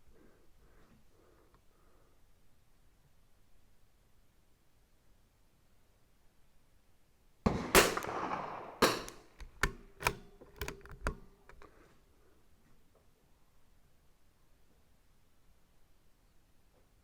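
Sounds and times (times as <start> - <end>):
rifle shot: 7.5 - 10.4
sharp rifle bolt clicks: 7.5 - 11.7.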